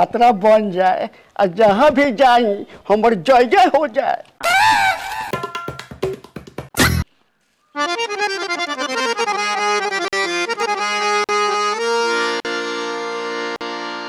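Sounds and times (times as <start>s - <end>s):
accordion-like reed melody: 7.7s - 14.0s.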